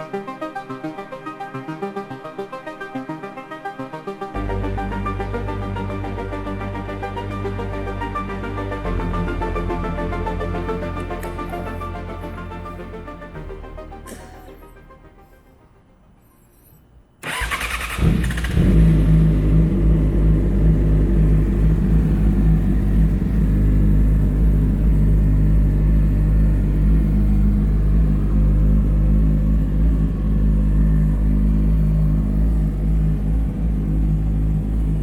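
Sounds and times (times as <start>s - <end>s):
starter motor cranking: 17.2s - 18.8s
motorcycle engine idling: 17.2s - 35.0s.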